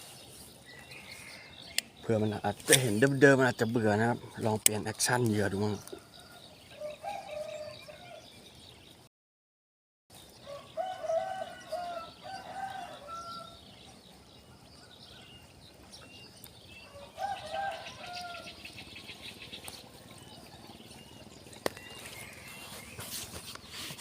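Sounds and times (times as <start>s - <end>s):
rooster crowing: 6.1s - 8.3s, 10.4s - 13.6s, 16.8s - 18.6s.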